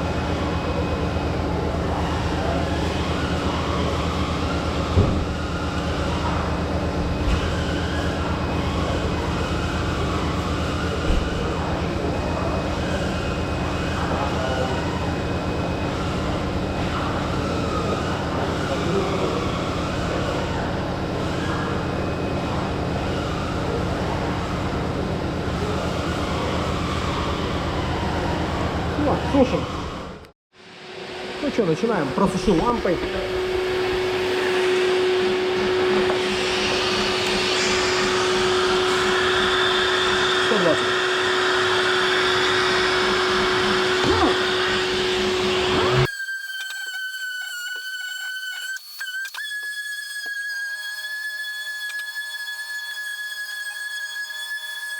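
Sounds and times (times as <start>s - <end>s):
electric fan whirring: 0.0s - 54.9s
mechanical rumble and hiss: 28.5s - 46.1s.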